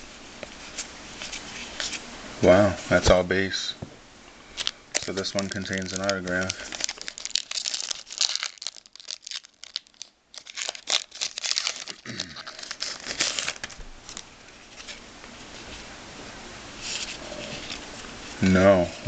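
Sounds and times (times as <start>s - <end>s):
card pack wrapper tearing and crinkling: 4.6s - 15.0s
cards rustling: 4.6s - 15.0s.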